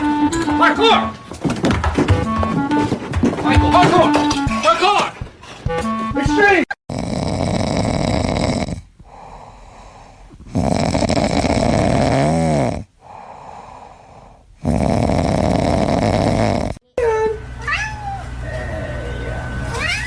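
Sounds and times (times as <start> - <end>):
pet snoring: 6.9 - 16.8.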